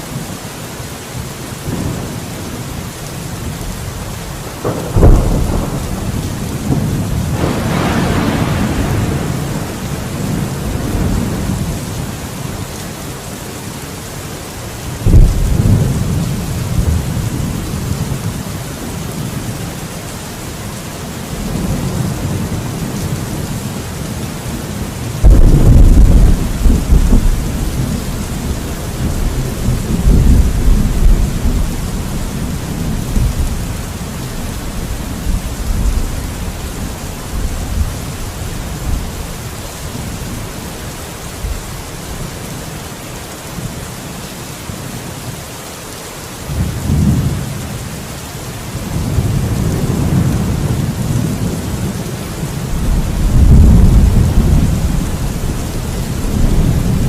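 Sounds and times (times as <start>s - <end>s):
steady rain hiss: 0.0s - 57.0s
rolling thunder: 4.5s - 12.2s, 15.0s - 19.4s, 25.1s - 39.2s, 48.8s - 57.0s
sharp thunder clap: 4.6s - 11.4s, 15.0s - 16.0s, 25.2s - 31.7s.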